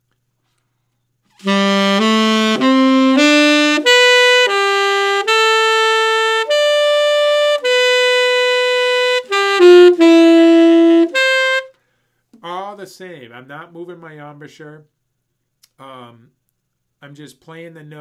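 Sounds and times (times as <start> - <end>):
saxophone playing held notes: 1.4 - 11.7.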